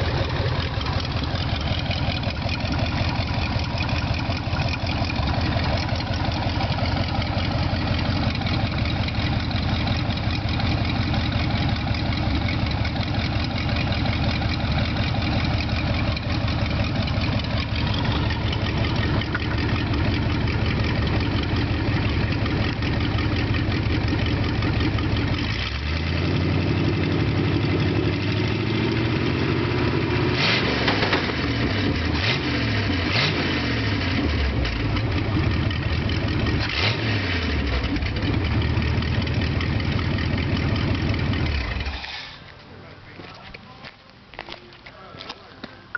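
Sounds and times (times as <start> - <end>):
truck engine running: 0.0 - 43.2
engine revving: 24.9 - 39.0.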